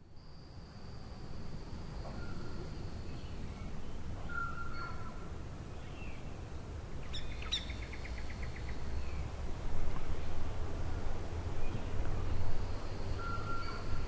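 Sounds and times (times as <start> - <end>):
birds whistling: 13.1 - 14.0.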